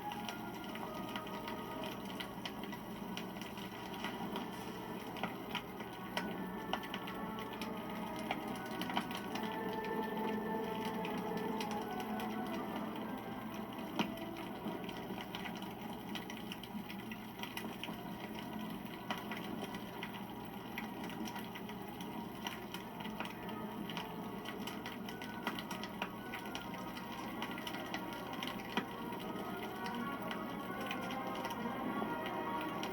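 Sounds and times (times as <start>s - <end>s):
campfire crackling and popping: 0.0s - 32.9s
hiss of flames: 0.1s - 12.8s.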